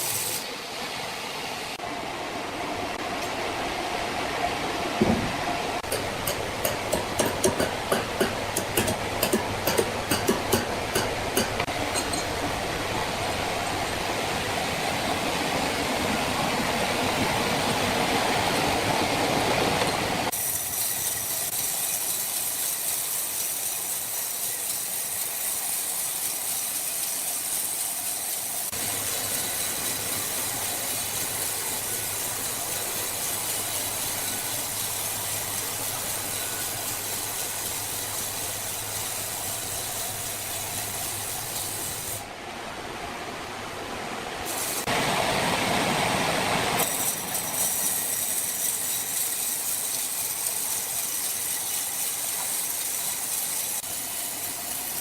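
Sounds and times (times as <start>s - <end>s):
high hiss: 0.0s - 1.8s
sawmill machinery running: 0.0s - 42.3s, 44.4s - 55.0s.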